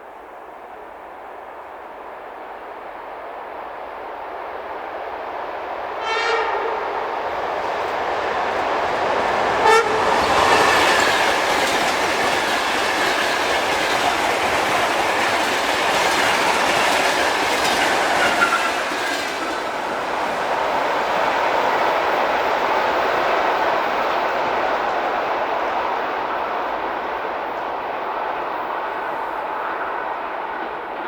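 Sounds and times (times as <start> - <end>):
train passing at speed: 0.0 - 31.0
short train horn toot: 6.0 - 7.1, 9.6 - 10.2.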